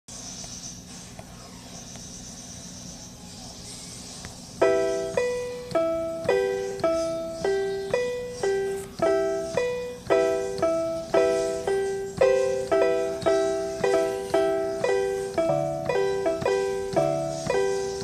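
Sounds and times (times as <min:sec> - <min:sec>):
faint low hum: 0:00.2 - 0:18.0
keyboard piano broken chords: 0:04.4 - 0:18.0.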